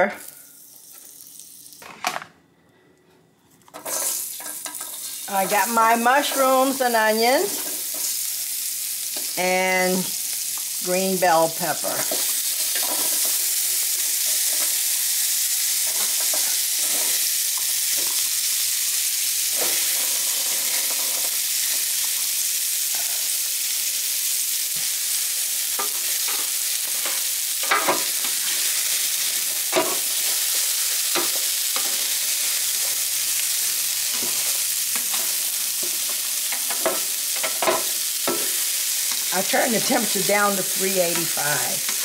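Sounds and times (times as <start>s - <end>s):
vegetables sizzling on a griddle: 0.0s - 1.9s, 3.7s - 42.0s
spatula scraping a griddle: 3.7s - 5.2s, 15.8s - 17.4s.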